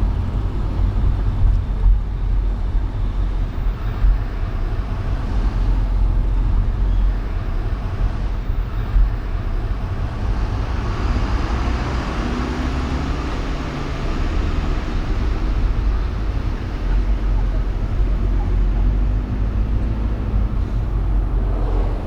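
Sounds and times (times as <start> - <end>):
road and engine rumble: 0.0 - 22.0
vehicle passing: 10.4 - 22.0.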